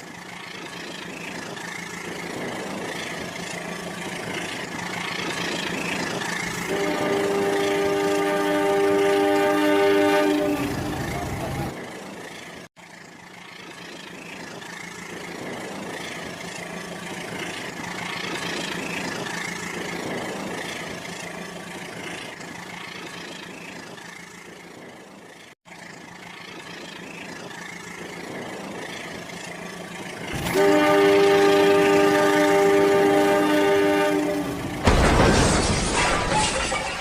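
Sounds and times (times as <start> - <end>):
toy train mechanical hum: 0.0 - 34.9
loud horn tone: 6.6 - 11.7, 30.4 - 34.8.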